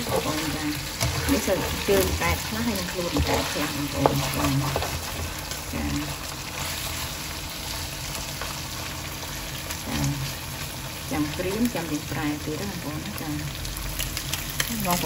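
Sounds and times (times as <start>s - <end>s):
spatula stirring in wok: 0.0s - 9.6s
frog legs sizzling in oil: 0.0s - 15.0s.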